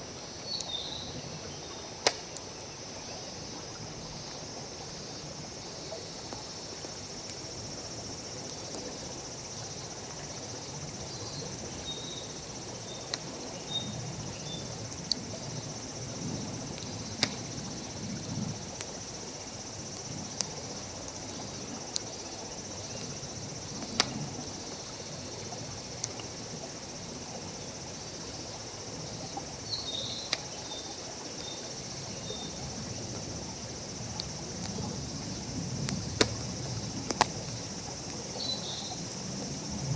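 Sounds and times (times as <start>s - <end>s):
insects droning: 0.0s - 39.9s
campfire crackling and popping: 2.0s - 2.5s, 13.0s - 13.5s, 14.8s - 19.1s, 19.7s - 24.6s, 34.0s - 38.4s.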